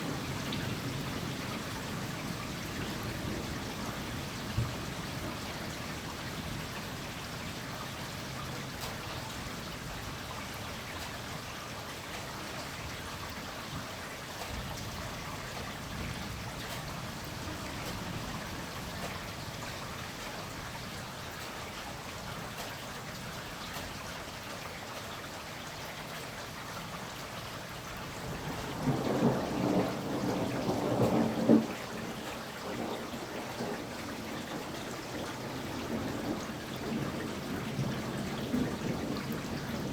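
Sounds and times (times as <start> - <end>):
rain falling: 0.0 - 39.9
thunder rumbling: 28.2 - 39.9.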